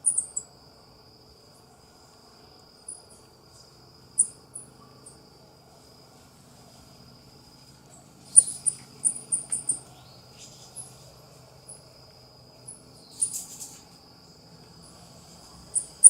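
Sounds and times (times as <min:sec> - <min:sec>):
coati high-pitched chirps: 0:00.0 - 0:00.5, 0:08.2 - 0:11.0, 0:12.7 - 0:13.9, 0:15.7 - 0:16.0
high insect drone: 0:00.0 - 0:16.0.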